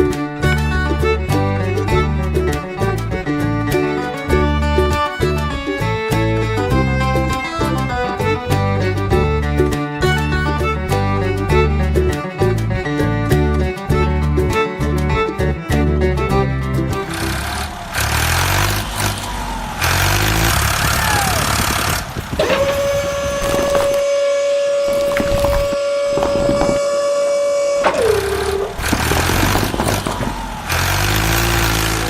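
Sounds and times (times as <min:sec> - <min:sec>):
truck engine: 0:00.0 - 0:32.0
truck horn blast: 0:19.8 - 0:32.0.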